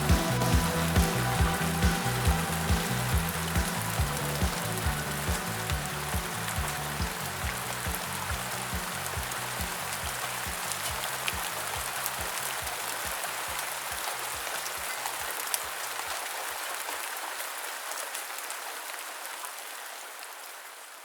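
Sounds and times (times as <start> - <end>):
muffled low music beat: 0.0 - 12.8
steady rain falling: 0.0 - 21.0.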